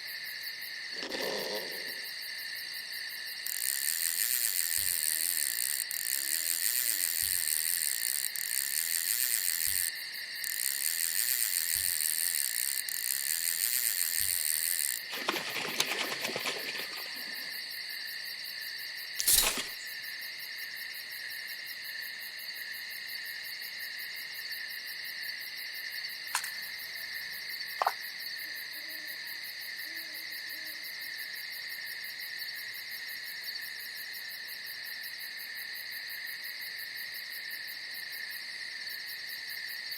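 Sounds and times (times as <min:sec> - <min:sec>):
crickets and insects trilling: 0:00.0 - 0:39.9
small clicks: 0:03.5 - 0:17.5, 0:19.2 - 0:19.8, 0:26.3 - 0:26.8, 0:27.8 - 0:28.0.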